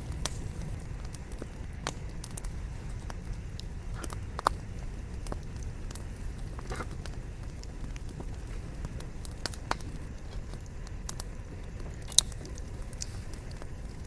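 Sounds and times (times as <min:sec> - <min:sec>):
campfire low rush: 0:00.0 - 0:14.0
logs crackling and popping: 0:00.0 - 0:14.0.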